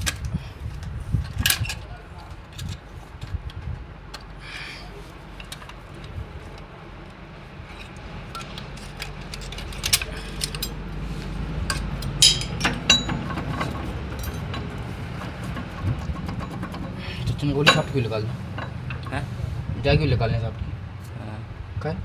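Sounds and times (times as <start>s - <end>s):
metallic clinks of tools: 11.7s - 14.6s.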